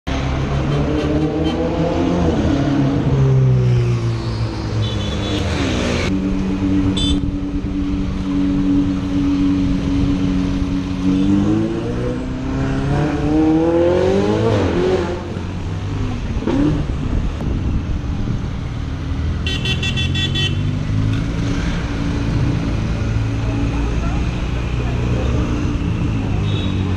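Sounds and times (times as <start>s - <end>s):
car horns: 4.8s - 5.6s, 6.9s - 7.4s, 19.4s - 20.7s.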